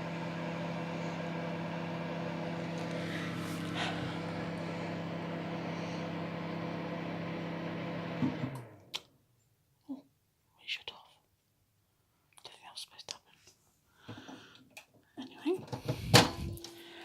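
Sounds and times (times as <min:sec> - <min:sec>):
microwave oven humming: 0:00.0 - 0:08.8, 0:15.8 - 0:17.0
microwave shutting off click: 0:00.0 - 0:08.9, 0:15.8 - 0:16.8.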